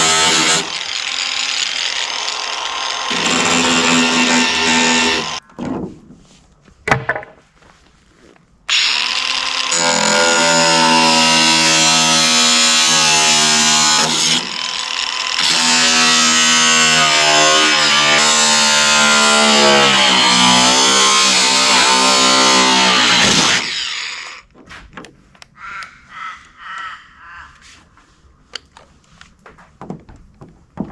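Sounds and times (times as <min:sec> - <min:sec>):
power tool motor running: 0:00.0 - 0:05.4, 0:08.7 - 0:24.4.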